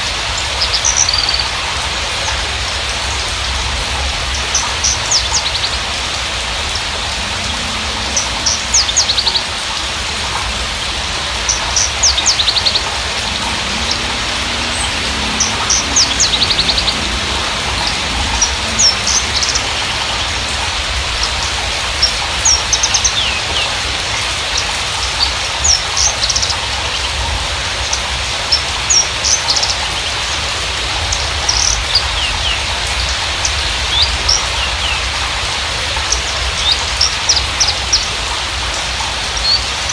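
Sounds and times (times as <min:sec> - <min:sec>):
steady hiss: 0:00.0 - 0:39.9
bird chirps and trills: 0:03.6 - 0:30.3.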